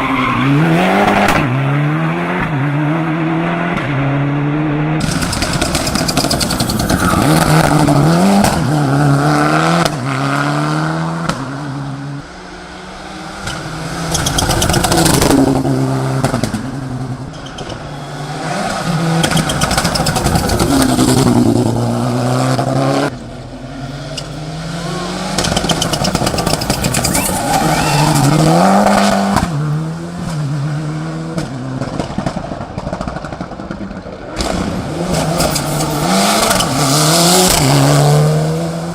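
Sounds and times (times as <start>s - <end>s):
race car engine revving hard: 23.9s - 32.0s, 34.4s - 38.9s.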